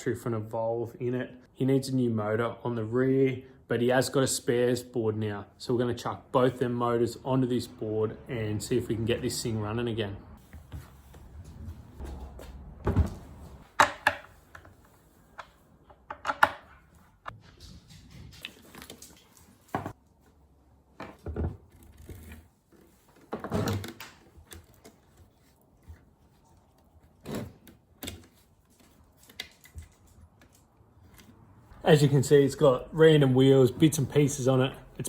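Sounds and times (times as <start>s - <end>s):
skateboard parts knocking and clattering: 12.9s - 14.7s.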